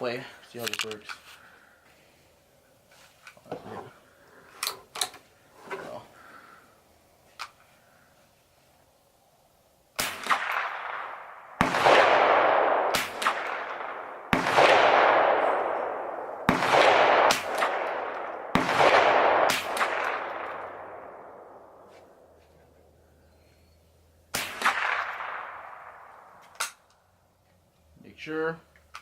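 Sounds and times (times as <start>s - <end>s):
faint sharp cracks: 9.9s - 22.6s, 24.3s - 27.6s
rifle shots echoing: 10.0s - 22.3s, 24.3s - 26.8s.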